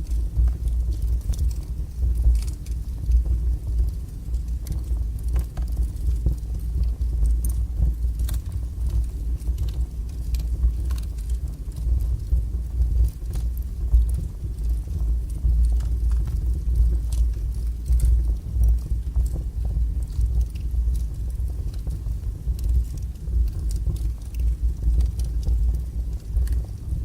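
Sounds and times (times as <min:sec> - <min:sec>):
burning logs crackling: 0:00.0 - 0:27.0
fire flames rumbling: 0:00.0 - 0:27.0.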